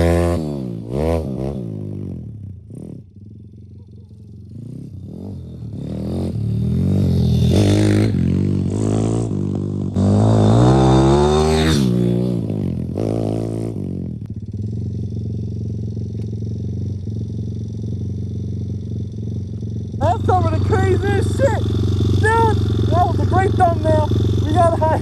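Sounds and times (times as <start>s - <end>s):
motorbike engine revving: 0.0s - 3.6s, 4.3s - 14.9s, 16.7s - 25.0s
motorbike engine idling: 3.1s - 5.8s, 14.2s - 25.0s.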